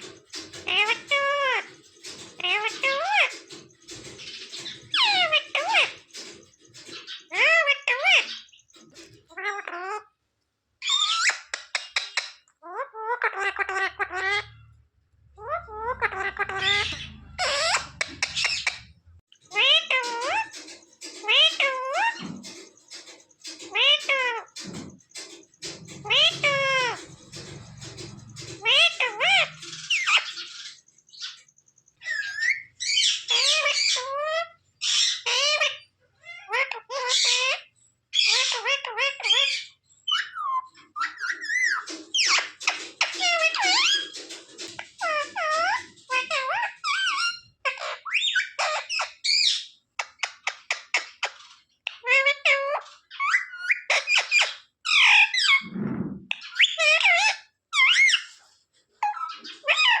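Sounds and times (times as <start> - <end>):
parrot calling: 0.0 - 10.1, 19.5 - 31.4
parrot chattering and squawking: 0.0 - 10.2, 10.8 - 14.8, 15.4 - 31.4, 32.0 - 58.4, 59.0 - 60.0.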